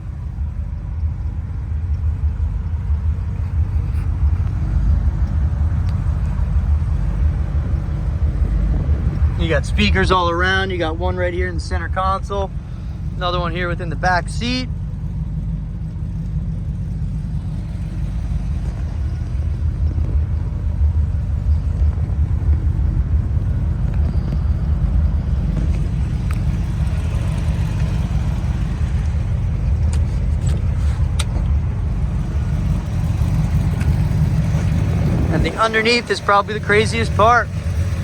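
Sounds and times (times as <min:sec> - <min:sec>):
engine idling: 0:00.0 - 0:38.0
faint clicks: 0:03.2 - 0:06.5, 0:23.4 - 0:26.7.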